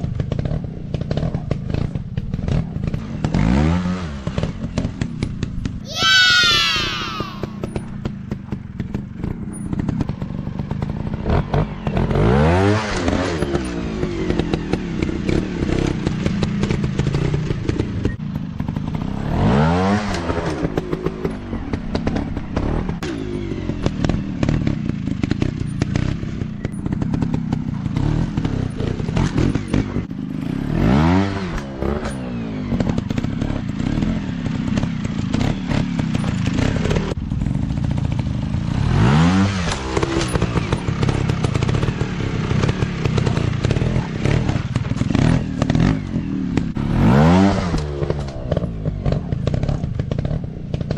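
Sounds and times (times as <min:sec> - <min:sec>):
dirt bike engines running: 0:00.0 - 0:50.9
engine revving up and down: 0:02.5 - 0:05.0, 0:11.2 - 0:27.3, 0:27.9 - 0:37.2, 0:38.7 - 0:50.9.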